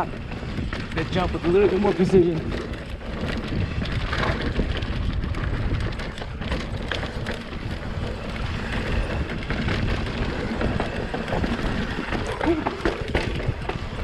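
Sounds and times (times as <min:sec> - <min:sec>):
bike rattling clicks: 0:00.0 - 0:14.0
tyres rumbling on dirt: 0:00.0 - 0:14.0
wind on microphone: 0:00.0 - 0:14.0.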